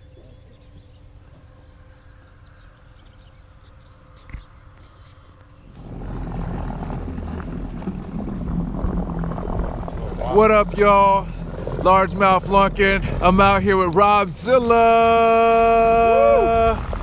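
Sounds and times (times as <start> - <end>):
birds chirping: 0.0 - 17.0
low steady hum: 0.0 - 17.0
boat motor running: 5.6 - 17.0.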